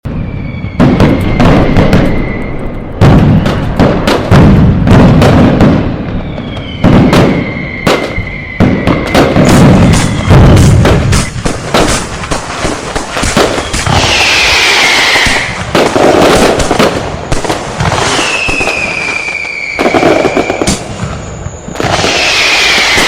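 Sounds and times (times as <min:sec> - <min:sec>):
high steady whistle: 0:00.0 - 0:03.6, 0:06.1 - 0:10.5, 0:13.4 - 0:15.6, 0:18.1 - 0:23.0
firecrackers banging: 0:00.0 - 0:23.0.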